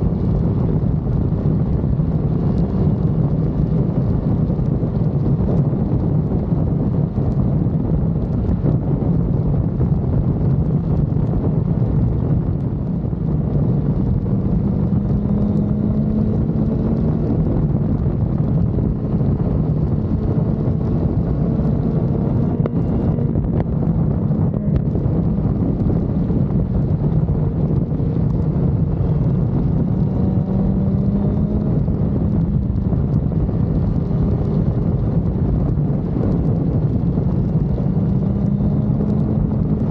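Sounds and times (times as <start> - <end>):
wind rushing over microphone: 0.0 - 39.9
motorcycle engine revving: 11.9 - 39.9.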